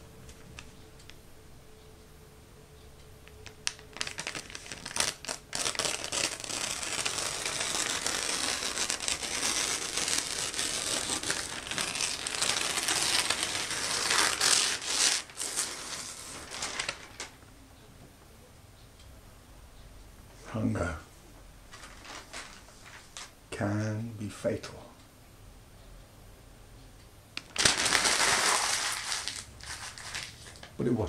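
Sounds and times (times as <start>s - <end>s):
crumpled material crinkling: 3.4s - 17.3s, 21.7s - 23.3s, 27.4s - 30.8s.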